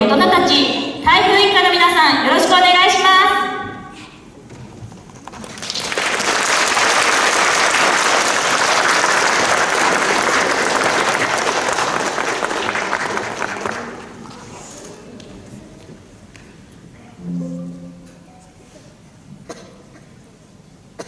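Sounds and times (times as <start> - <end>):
audience applauding: 5.2 - 14.2.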